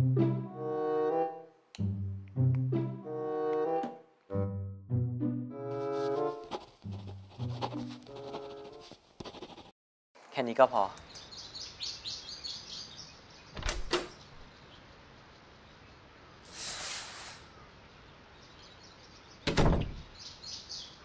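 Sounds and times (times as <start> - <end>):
birds chirping: 10.5 - 16.5, 17.4 - 21.0
door latch clicks: 13.6 - 14.2
door shutting thump: 13.6 - 14.2, 19.5 - 20.0
brief hiss: 16.5 - 17.5.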